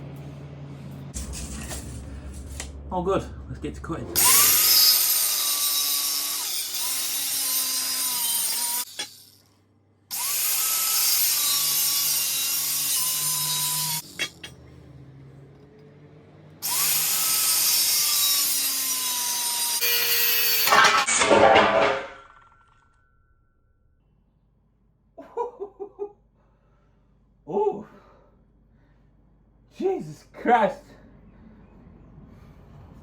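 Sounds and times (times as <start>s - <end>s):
cutting disc cutting steel: 4.2s - 9.5s, 10.1s - 14.7s, 16.6s - 23.1s.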